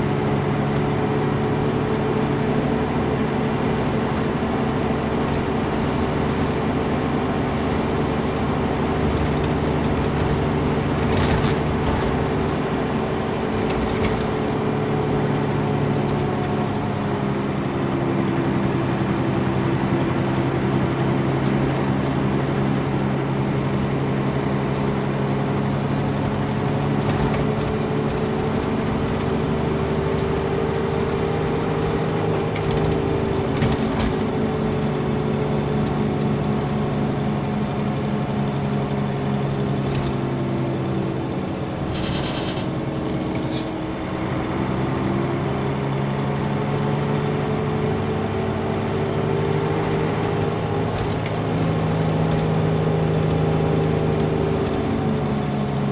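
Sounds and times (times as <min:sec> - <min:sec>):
bus diesel engine running: 0:00.0 - 0:55.9
short air hisses: 0:32.8 - 0:43.8, 0:51.4 - 0:55.9.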